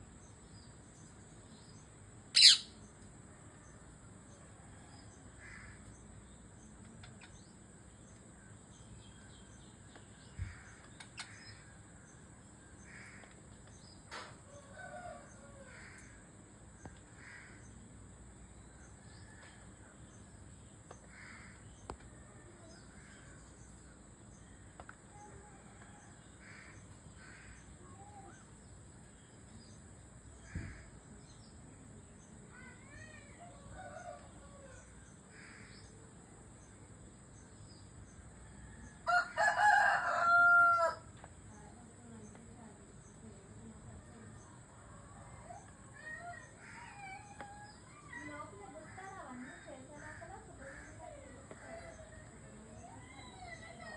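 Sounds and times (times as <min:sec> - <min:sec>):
parrot chirping and squawking: 0:02.4 - 0:02.8.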